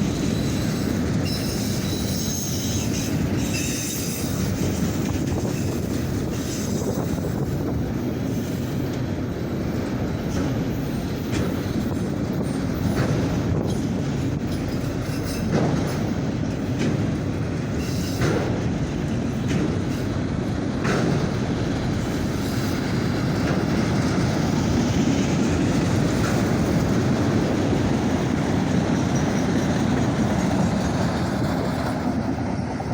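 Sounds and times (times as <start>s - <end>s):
freight train rolling past: 0.0s - 32.9s
wheels clacking over rail joints: 0.0s - 32.9s.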